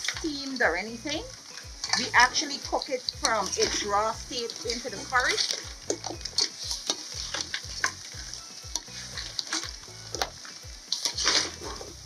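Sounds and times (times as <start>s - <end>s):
food sizzling in pot: 0.0s - 12.0s
spoon clacking and scraping: 3.0s - 12.0s.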